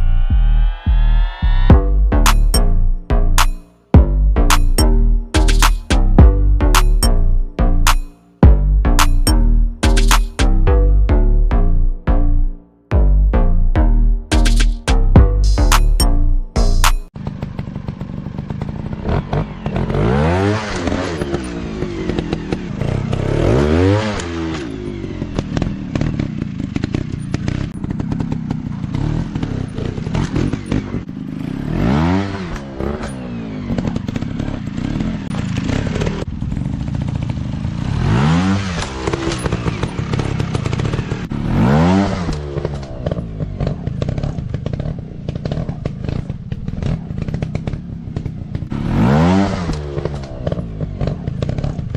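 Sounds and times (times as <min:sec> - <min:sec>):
dirt bike engines revving: 0:14.6 - 0:51.9.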